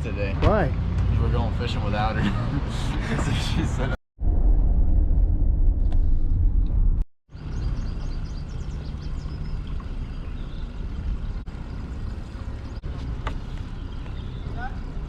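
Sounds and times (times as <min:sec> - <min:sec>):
engine running with low rumble: 0:00.2 - 0:15.0
birds chirping: 0:07.3 - 0:15.0.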